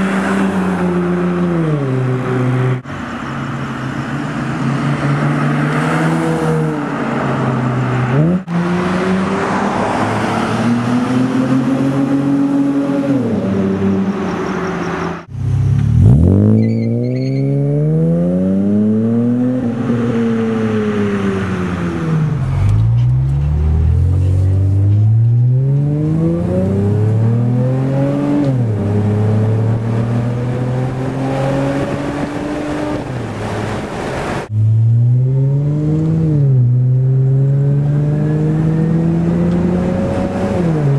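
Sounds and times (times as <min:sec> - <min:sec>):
car engine revving: 0:15.2 - 0:40.9.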